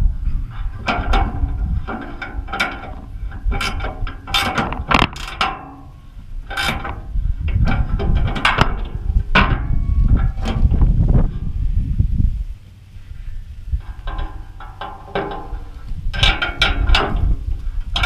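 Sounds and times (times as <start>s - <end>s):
low rumble: 0.0s - 5.2s, 5.9s - 18.0s
metallic clicks and clanks: 0.5s - 11.5s, 13.8s - 18.0s.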